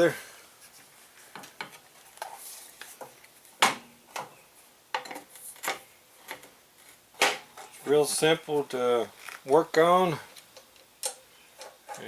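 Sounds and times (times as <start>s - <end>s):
metallic clicks and knocks: 10.5s - 12.0s.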